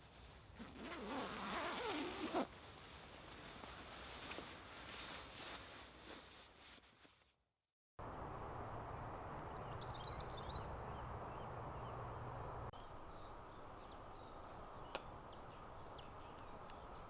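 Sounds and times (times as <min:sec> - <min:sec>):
small birds chirping: 0:12.8 - 0:17.0.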